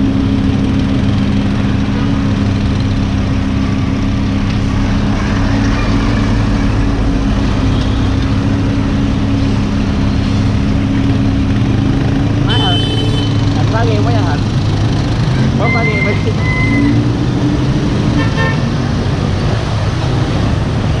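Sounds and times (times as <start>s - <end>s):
car engine idling: 0.0s - 16.7s.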